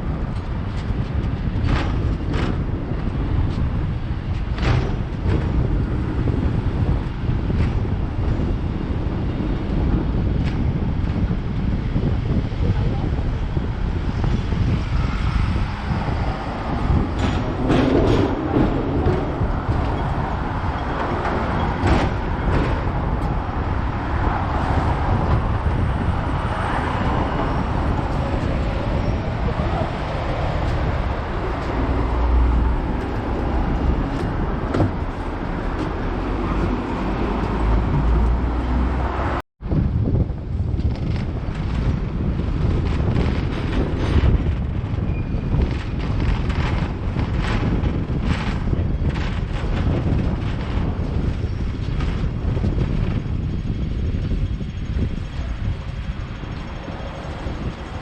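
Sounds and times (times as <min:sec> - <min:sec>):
road traffic: 0:00.0 - 0:58.0
tram rumbling on tracks: 0:00.0 - 0:58.0
sharp knocks: 0:16.9 - 0:20.2.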